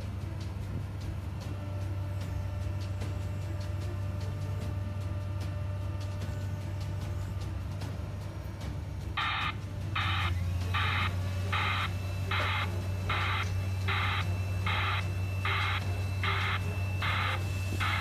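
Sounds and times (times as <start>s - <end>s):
low engine hum: 0.0s - 18.0s
white-noise reversing alarm: 9.2s - 18.0s.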